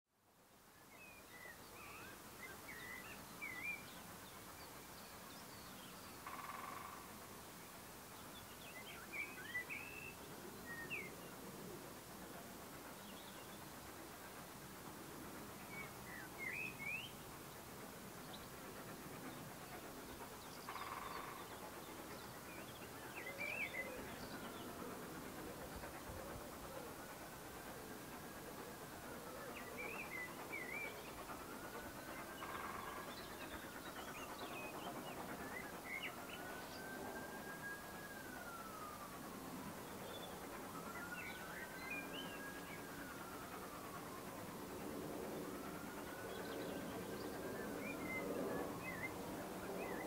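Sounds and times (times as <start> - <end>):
faint open-air hiss: 0.1 - 50.0
faint outdoor hum: 0.2 - 50.0
birds chirping and warbling: 18.2 - 37.4.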